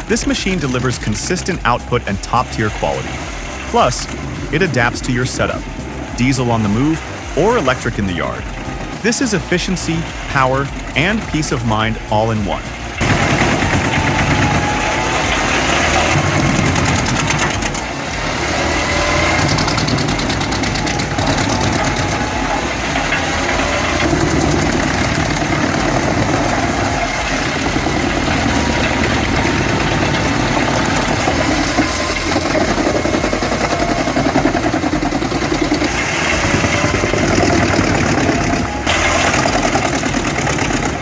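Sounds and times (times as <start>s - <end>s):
heavy machinery engine rumble: 0.0s - 41.0s.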